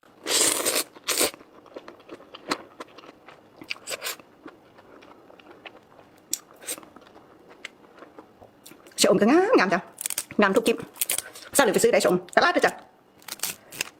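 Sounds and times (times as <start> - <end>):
person chewing food: 0.2 - 9.0.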